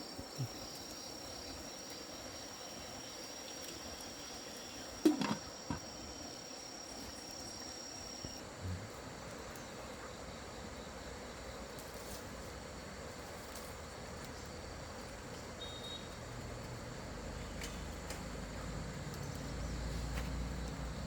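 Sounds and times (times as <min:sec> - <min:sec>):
insect trilling: 0:00.0 - 0:09.0.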